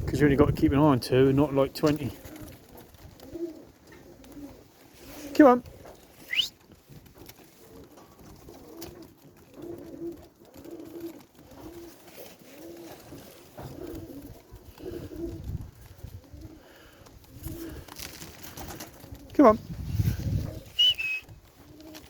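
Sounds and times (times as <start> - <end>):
pigeons cooing: 0.1 - 22.0.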